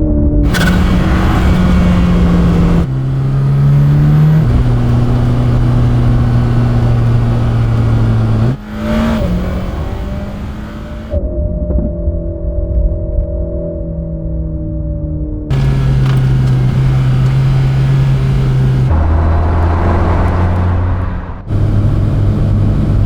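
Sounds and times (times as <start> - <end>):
road and wind noise: 0.0 - 11.2, 15.5 - 23.0
car engine shifting gears: 0.4 - 11.2, 15.5 - 23.0.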